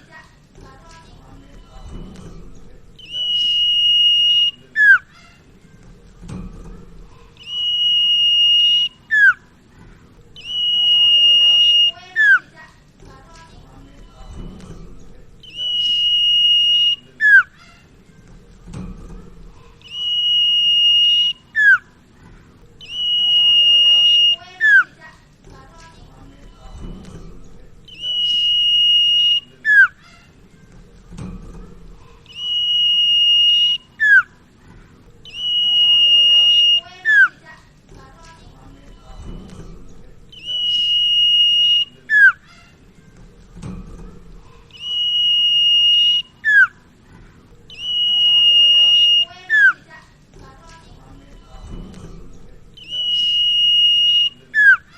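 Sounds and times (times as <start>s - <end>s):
bird whistling song: 3.0s - 5.2s, 7.4s - 9.5s, 10.3s - 12.5s, 15.4s - 17.6s, 19.8s - 22.0s, 22.8s - 25.0s, 27.8s - 30.2s, 32.2s - 34.4s, 35.2s - 37.4s, 40.3s - 42.5s, 44.7s - 46.8s, 47.7s - 49.9s, 52.8s - 54.9s.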